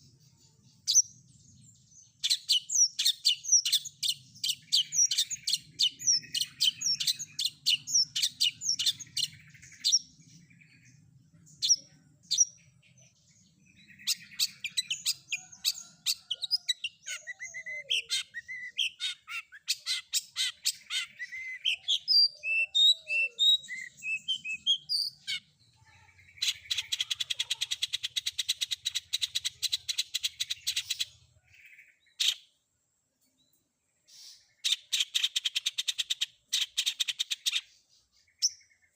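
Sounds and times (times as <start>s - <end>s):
bird chirping and whistling: 2.2s - 10.0s, 13.9s - 25.4s.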